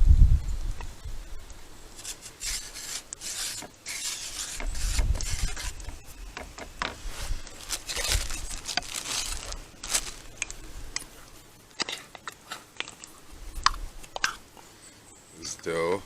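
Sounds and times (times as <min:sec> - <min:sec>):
hands scraping flour on surface: 0:02.0 - 0:06.0.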